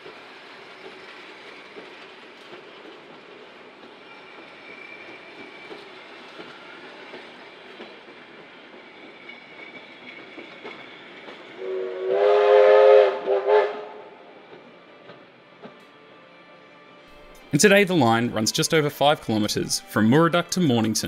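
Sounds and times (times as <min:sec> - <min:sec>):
train wheel clatter: 0:00.0 - 0:12.0
train horn blasts: 0:11.6 - 0:14.4.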